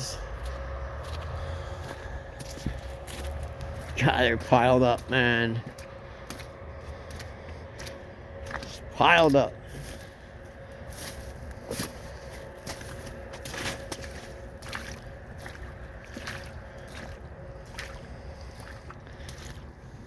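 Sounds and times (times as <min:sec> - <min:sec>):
wind rumble on microphone: 0:00.0 - 0:08.9
footsteps through grass and brush: 0:00.1 - 0:08.9, 0:09.6 - 0:19.8.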